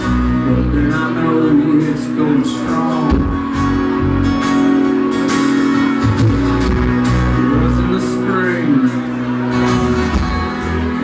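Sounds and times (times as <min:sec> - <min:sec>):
country rock band playing live: 0:00.0 - 0:11.0.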